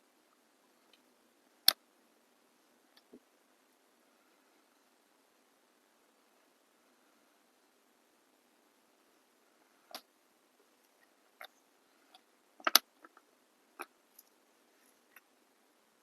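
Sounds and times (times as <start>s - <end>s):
small objects clicking on work surface: 12.6s - 13.2s.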